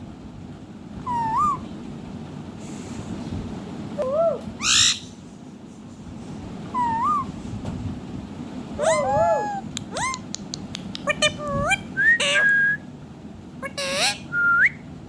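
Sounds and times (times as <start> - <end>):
parrot whistled notes: 6.8 - 7.3, 11.2 - 12.8.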